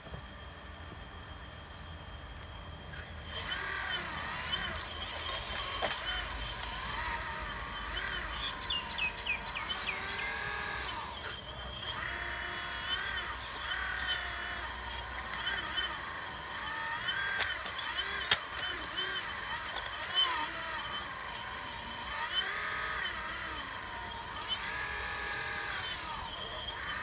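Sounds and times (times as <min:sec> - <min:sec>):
hydraulic pump whine: 0:00.0 - 0:27.0.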